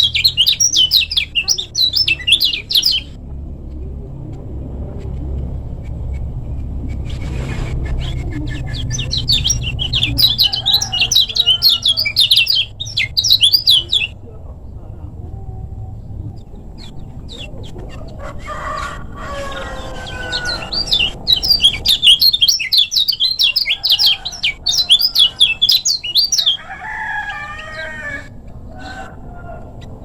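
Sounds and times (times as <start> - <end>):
bird singing high chirps: 0.0 - 3.2, 8.0 - 14.2, 19.5 - 26.6
drawn-out bird calls: 0.0 - 3.2, 6.9 - 14.2, 16.5 - 30.0.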